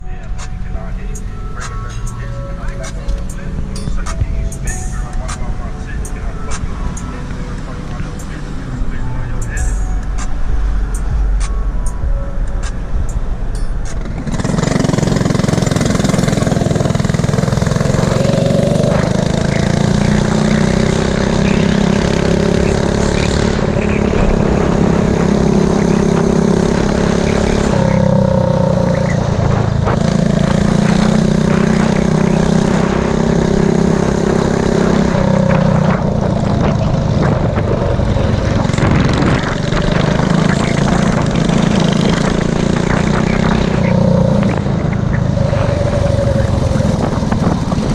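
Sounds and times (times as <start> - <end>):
small engine running hard: 13.8 - 47.9.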